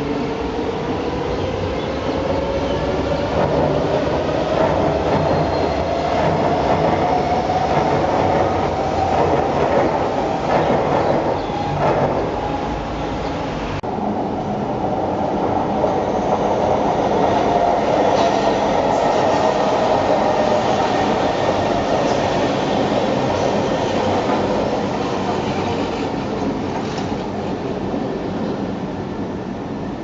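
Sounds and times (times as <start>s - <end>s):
train rumbling along track: 0.0s - 30.0s.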